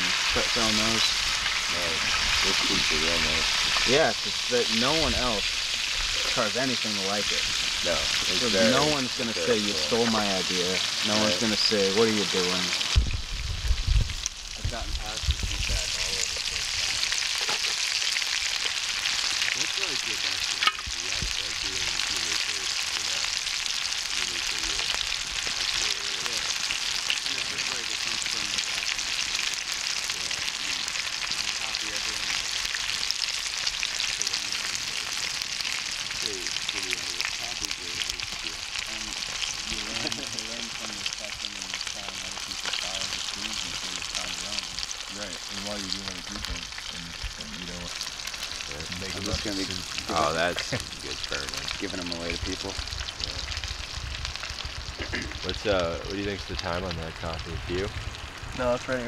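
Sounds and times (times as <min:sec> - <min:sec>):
chicken sizzling in hot oil: 0:00.0 - 0:59.0.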